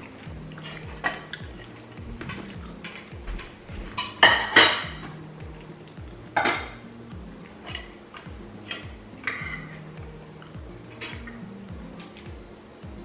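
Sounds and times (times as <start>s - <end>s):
cutlery clinking on plates: 2.2s - 5.1s.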